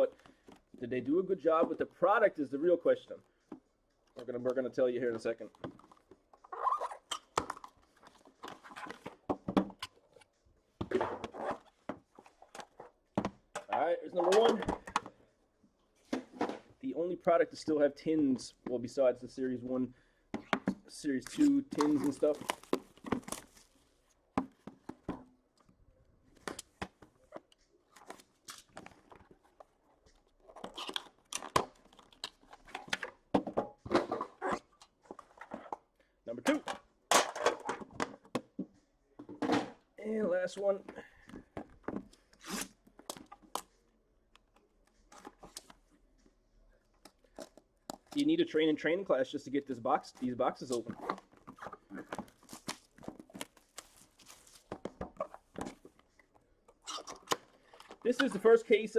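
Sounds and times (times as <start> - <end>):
packaging rustling and tearing: 50.7 - 55.8.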